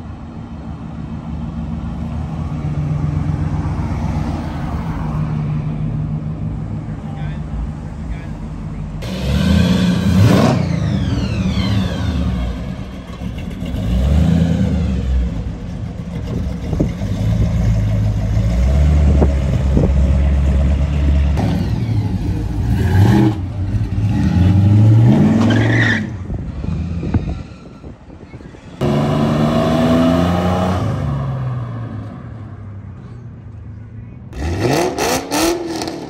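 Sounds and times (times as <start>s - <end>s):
car engines with loud exhaust: 0.0s - 36.0s
engine revving: 9.0s - 27.1s, 28.8s - 31.9s, 34.4s - 36.0s.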